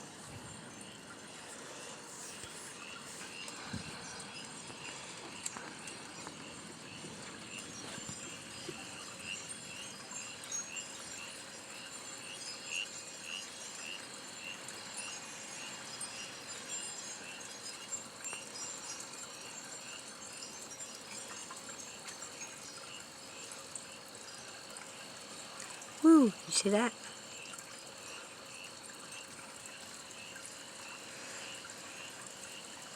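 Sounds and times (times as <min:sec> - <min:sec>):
insect chirp: 0:00.0 - 0:32.9
insect high-pitched trill: 0:00.0 - 0:32.9.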